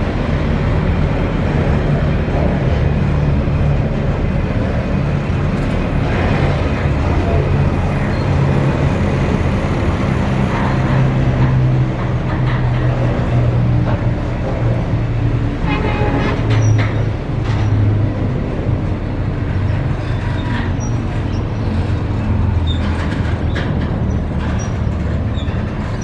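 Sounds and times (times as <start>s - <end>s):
steel wheels rumbling on rails: 0.0s - 26.0s
short wheel squeal: 15.7s - 17.8s, 19.9s - 26.0s.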